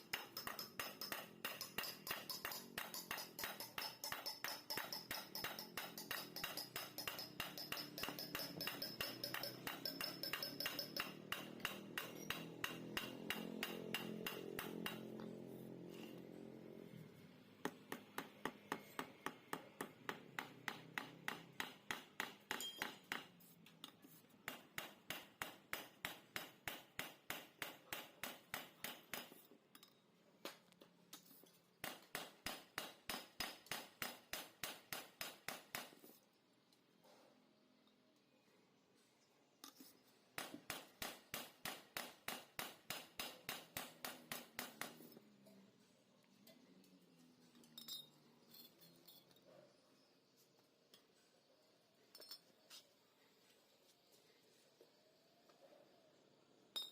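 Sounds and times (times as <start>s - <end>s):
hammer striking metal: 0.0s - 15.2s, 17.6s - 23.3s, 31.8s - 36.0s, 40.4s - 45.2s.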